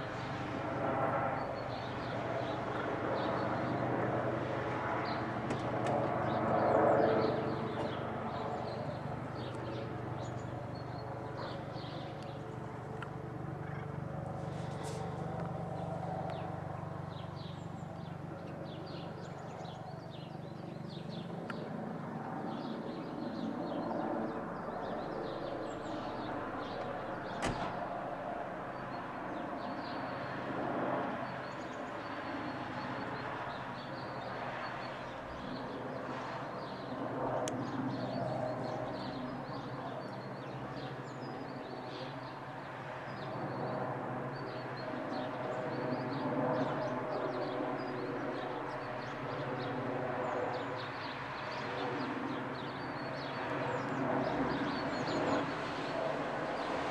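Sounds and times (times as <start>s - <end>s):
distant helicopter hum: 0.0s - 56.9s
small birds chirping: 4.9s - 27.4s, 28.7s - 56.9s.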